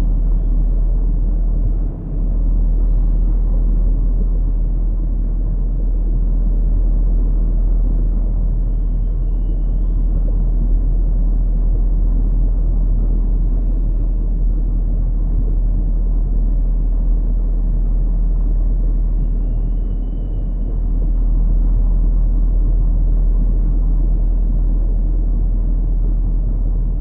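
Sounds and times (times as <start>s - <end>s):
low rumbling noise: 0.0s - 27.0s
faint high whistle: 8.7s - 10.0s.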